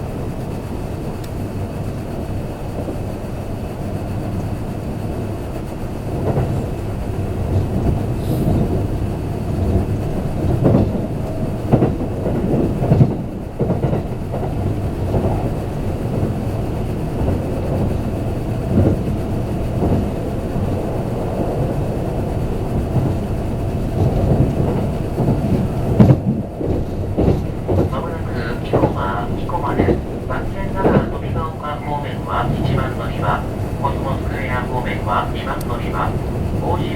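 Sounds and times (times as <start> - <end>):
train wheels rumbling on rail: 0.0 - 36.9.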